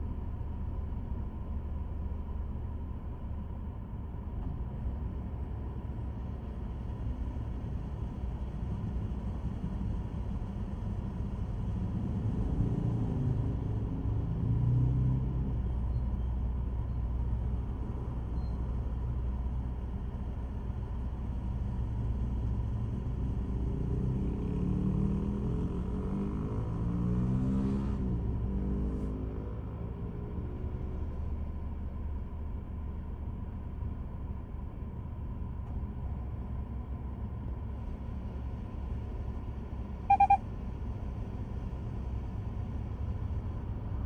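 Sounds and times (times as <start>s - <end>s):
faint hum: 39.9s - 40.5s.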